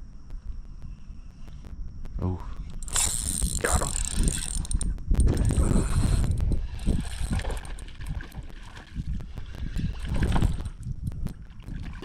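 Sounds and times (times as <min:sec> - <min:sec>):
fishing reel gears ticking: 0:02.6 - 0:11.6
wind buffeting microphone: 0:02.6 - 0:12.0.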